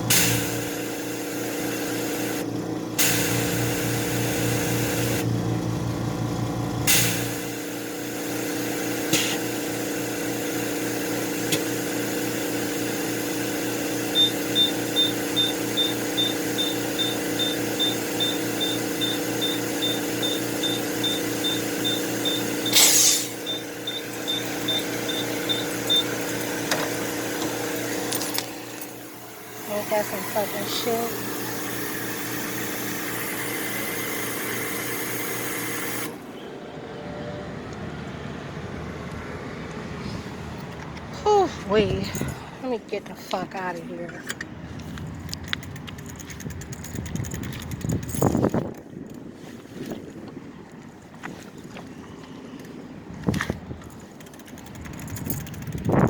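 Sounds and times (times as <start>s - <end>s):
air compressor humming: 0.0s - 36.5s, 53.6s - 56.0s
air hissing: 3.0s - 5.2s, 6.9s - 36.2s
high electronic beeps: 14.1s - 26.4s.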